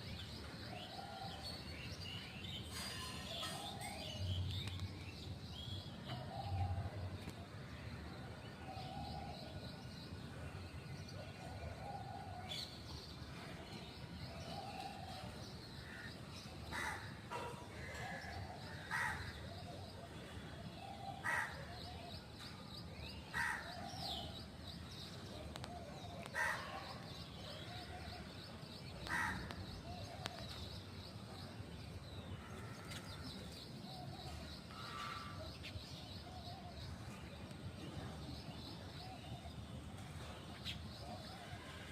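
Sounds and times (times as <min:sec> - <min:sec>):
crow cawing: 0:29.1 - 0:29.5.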